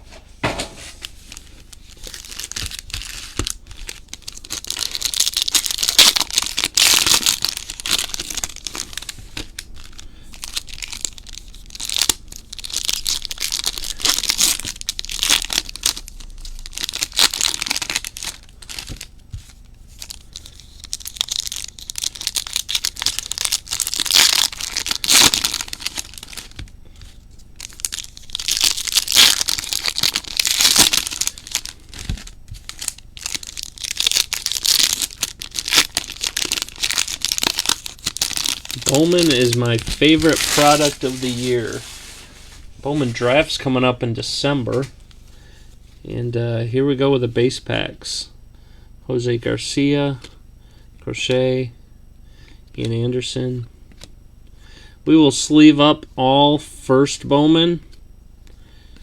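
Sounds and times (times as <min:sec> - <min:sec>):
wrappers tearing and crinkling: 0:01.0 - 0:43.6.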